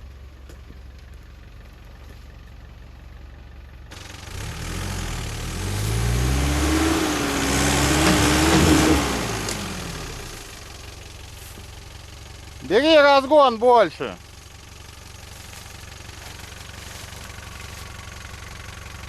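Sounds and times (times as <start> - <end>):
suv engine revving hard: 4.2 - 10.4.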